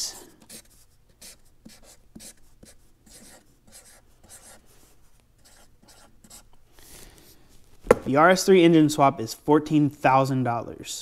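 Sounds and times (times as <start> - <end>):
pen scratching paper: 0.5 - 4.6, 5.4 - 6.5.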